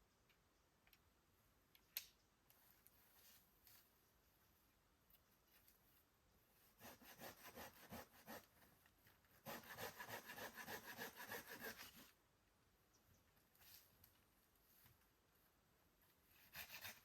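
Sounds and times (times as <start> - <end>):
hand saw cutting wood: 6.8 - 8.5, 9.4 - 12.0, 16.5 - 17.0.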